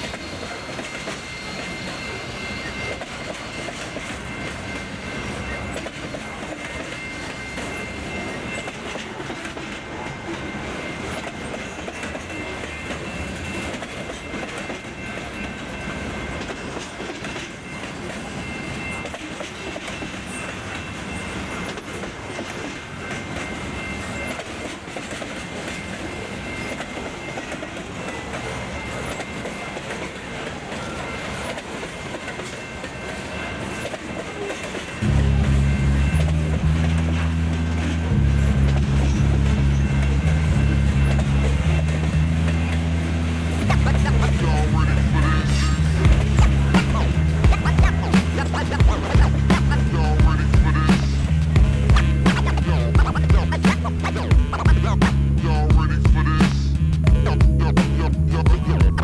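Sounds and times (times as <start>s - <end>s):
high-pitched ringing: 0.0s - 21.8s, 30.7s - 54.7s
train wheels clattering on rails: 0.0s - 57.0s.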